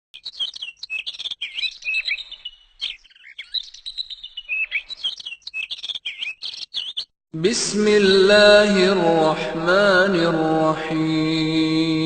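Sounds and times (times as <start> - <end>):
small birds chirping: 0.2 - 7.2.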